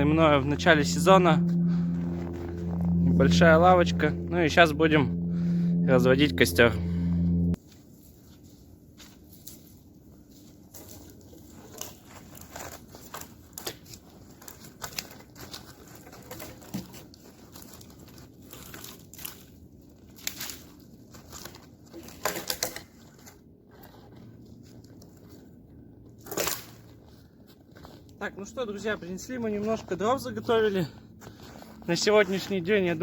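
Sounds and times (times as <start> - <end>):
twigs crackling and snapping: 20.1 - 22.7.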